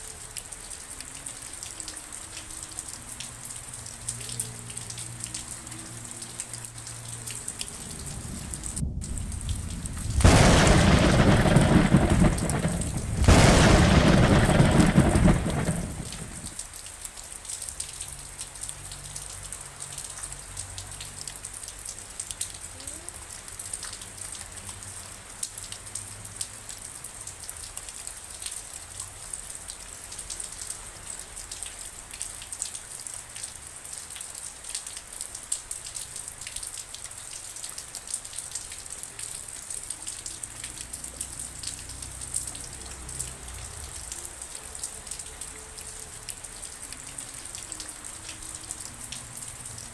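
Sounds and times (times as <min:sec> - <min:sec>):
rain falling: 0:00.0 - 0:49.9
thunder rumble: 0:07.4 - 0:16.6.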